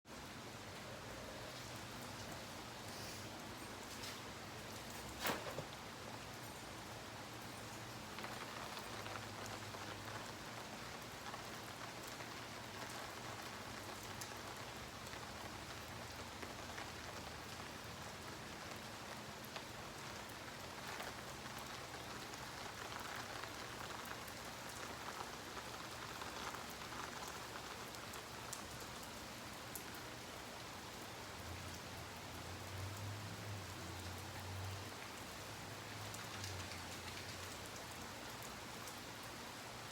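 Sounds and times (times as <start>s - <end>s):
rain hissing on ground: 0.1s - 39.9s
raindrop clicks: 7.6s - 29.1s, 35.8s - 39.3s.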